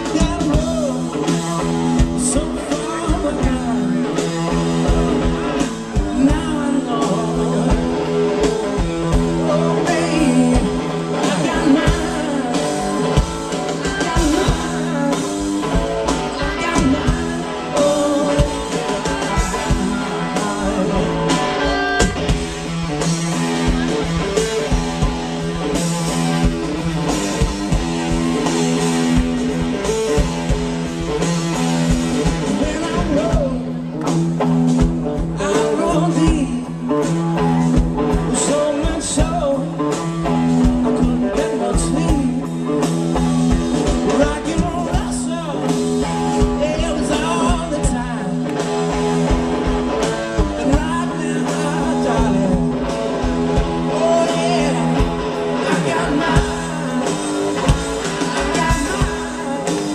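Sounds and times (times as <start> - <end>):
person singing: 0.0 - 22.4, 32.1 - 33.9, 35.1 - 43.0, 43.9 - 48.7, 50.2 - 59.9
drums: 0.0 - 59.9
electric guitar: 0.0 - 59.9.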